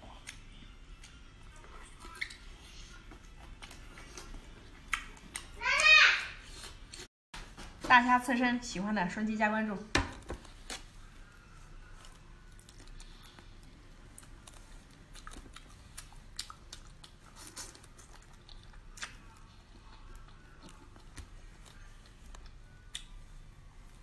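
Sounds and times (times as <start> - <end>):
chewing and biting: 0.1 - 5.6, 11.9 - 23.3.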